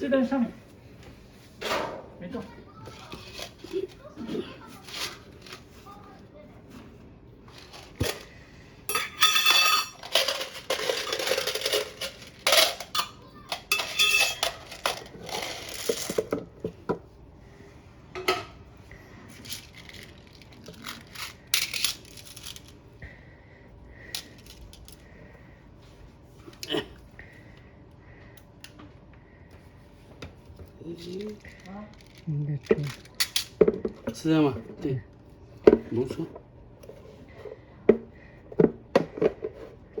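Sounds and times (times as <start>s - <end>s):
metal parts and screws clattering: 8.9s - 16.4s, 19.4s - 22.8s, 32.8s - 34.2s.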